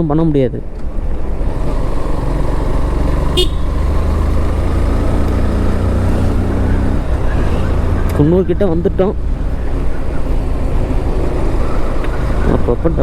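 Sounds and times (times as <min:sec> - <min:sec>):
wind and road rumble: 0:00.0 - 0:13.0
motorcycle engine running: 0:00.8 - 0:13.0
high-pitched horn toot: 0:03.4 - 0:03.8.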